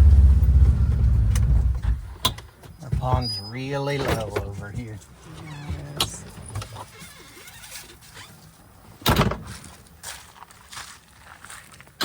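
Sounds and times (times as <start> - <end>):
footsteps crunching dry grass: 9.4 - 12.0.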